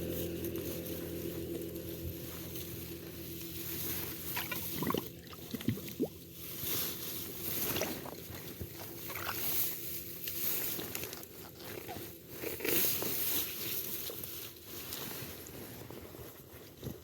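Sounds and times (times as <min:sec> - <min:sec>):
rustling in wet grass: 0:00.0 - 0:17.0
squelching in mud and water: 0:03.5 - 0:13.4.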